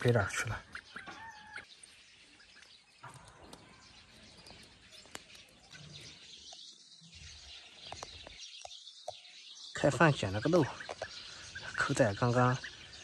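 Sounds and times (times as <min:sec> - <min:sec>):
faint outdoor ambience: 0:00.0 - 0:13.0
small ticks: 0:04.4 - 0:05.8.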